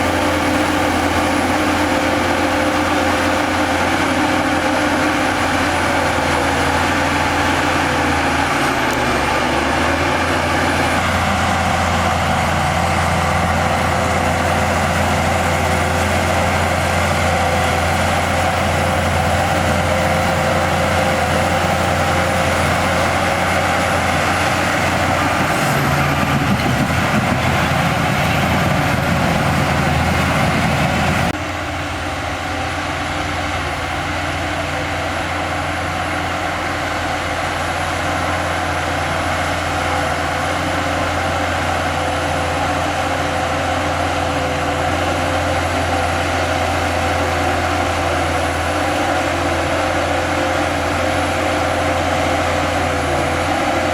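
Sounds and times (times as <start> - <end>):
diesel machinery engine under load: 0.0 - 53.9.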